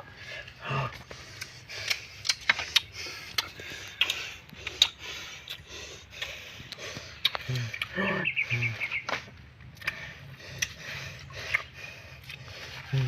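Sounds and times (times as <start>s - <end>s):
sharp clicks and snaps: 1.3s - 5.6s.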